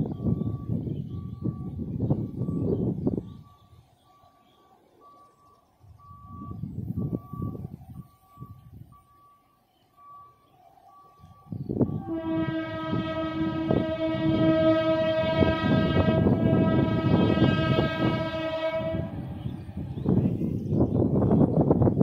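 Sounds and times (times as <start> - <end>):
train rumbling on rails: 0.0 - 22.0
train horn blast: 11.8 - 20.3.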